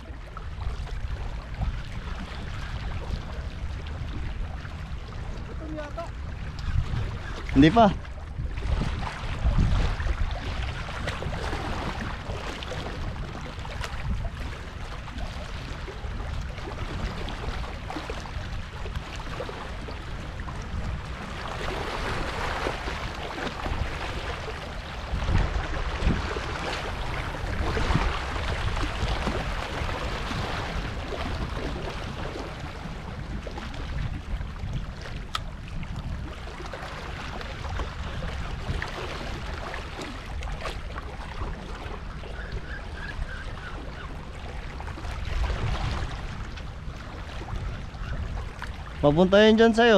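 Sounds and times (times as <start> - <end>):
waves on rocky shore: 0.0 - 49.9
wind buffeting microphone: 0.0 - 49.9.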